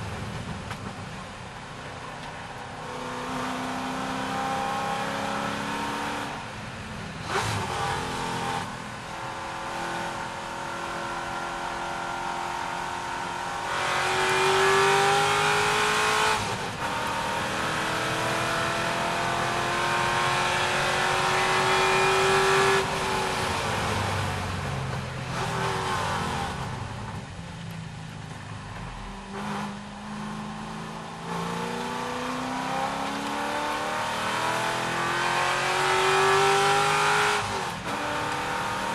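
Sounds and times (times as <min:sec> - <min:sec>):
racing car engine accelerating: 0:02.8 - 0:06.4, 0:07.2 - 0:24.3, 0:29.3 - 0:38.9.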